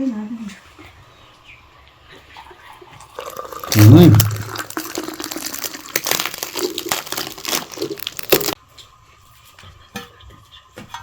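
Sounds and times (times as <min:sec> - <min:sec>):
crinkling handling noise: 0:03.2 - 0:08.6.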